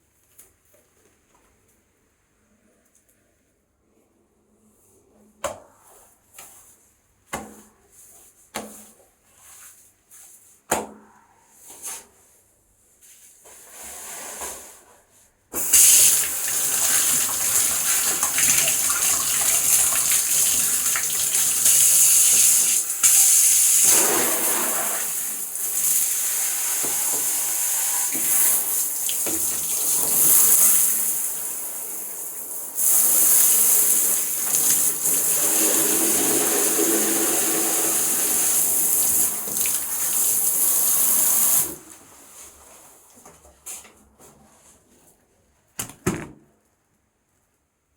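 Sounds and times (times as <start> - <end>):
aerosol can spraying hiss: 15.6 - 17.2.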